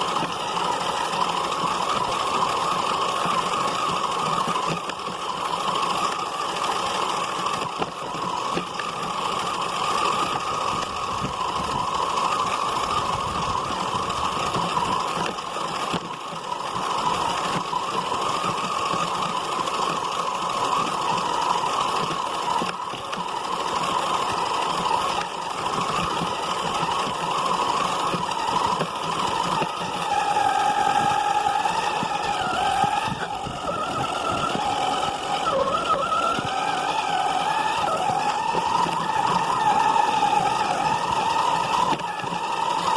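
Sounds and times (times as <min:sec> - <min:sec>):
radio-controlled car whining: 0:00.0 - 0:42.9.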